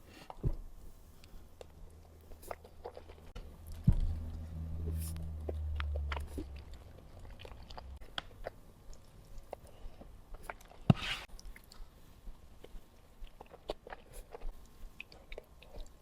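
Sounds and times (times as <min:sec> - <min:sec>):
chewing and biting food: 0:01.2 - 0:16.0
low hum: 0:03.3 - 0:08.5.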